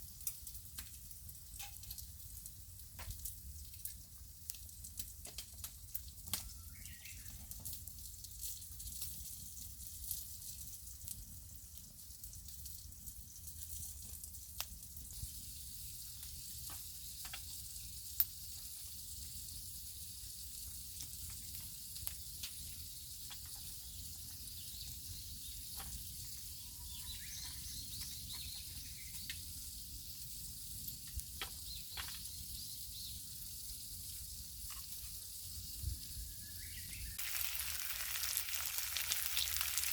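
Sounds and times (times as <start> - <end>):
wood fire crackling and popping: 0.0 - 24.4, 37.2 - 39.9
clams sizzling on a grill: 0.0 - 36.3, 37.1 - 39.9.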